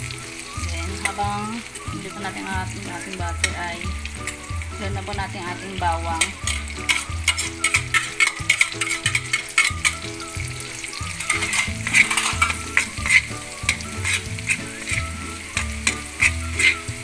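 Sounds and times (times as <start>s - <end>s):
garlic sizzling in butter: 0.0s - 17.0s
spatula scraping and tapping pan: 3.4s - 4.6s, 6.0s - 17.0s.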